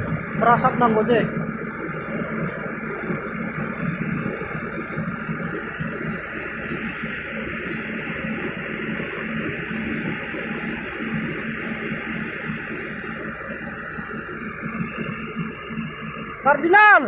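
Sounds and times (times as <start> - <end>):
excavator diesel engine: 0.0 - 8.1.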